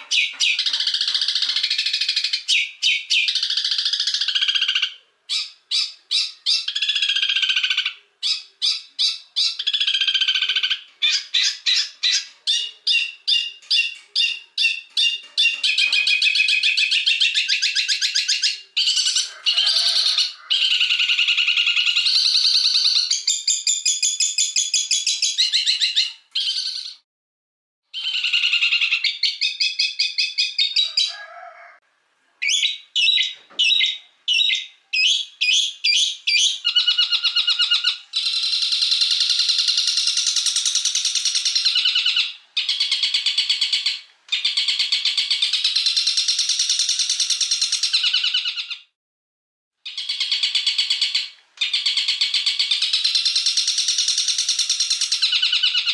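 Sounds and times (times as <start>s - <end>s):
bird trills: 0.0s - 27.0s
sharp chattering bird calls: 0.0s - 27.0s, 28.0s - 31.0s, 32.4s - 48.9s, 49.9s - 55.9s.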